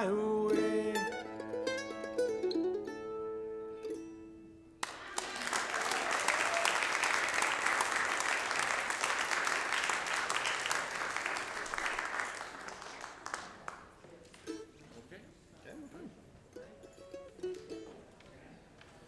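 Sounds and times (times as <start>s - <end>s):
congregation applauding: 4.8s - 14.1s.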